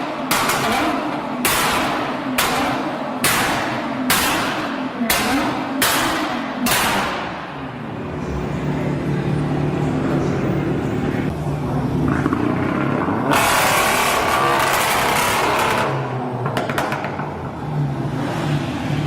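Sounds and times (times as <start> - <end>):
sharp crack: 0.2 - 7.6.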